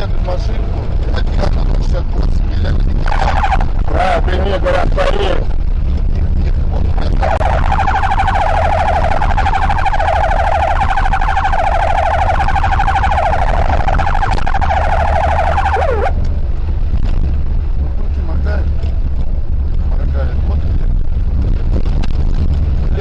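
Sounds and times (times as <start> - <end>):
low vehicle rumble: 0.0 - 23.0
police siren warbling: 3.0 - 4.1, 7.0 - 16.2.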